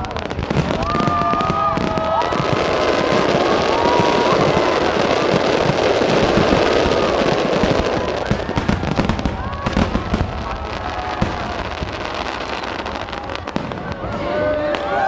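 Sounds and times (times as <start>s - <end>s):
fireworks crackling and popping: 0.0s - 15.0s
fireworks whistling: 0.0s - 15.0s.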